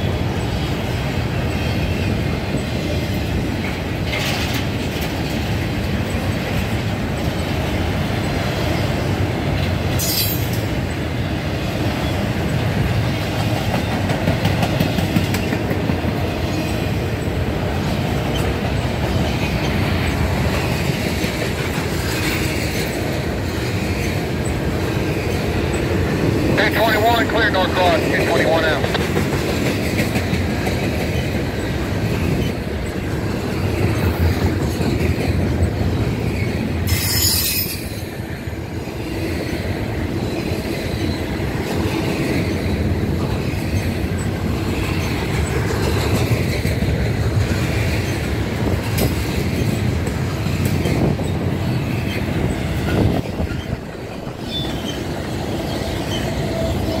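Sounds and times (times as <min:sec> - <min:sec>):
freight train wheels rumbling: 0:00.0 - 0:57.0
clatter over rail joints: 0:03.6 - 0:07.5, 0:13.3 - 0:16.8.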